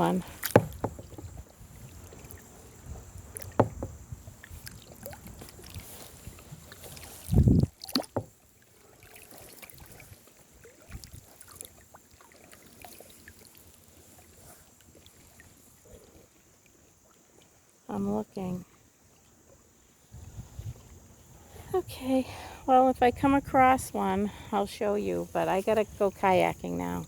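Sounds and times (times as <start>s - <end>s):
light water sounds: 0.0s - 27.0s
dull low thump: 0.4s - 1.4s, 3.4s - 4.3s
small knocks on kayak: 0.4s - 5.6s, 7.8s - 8.4s.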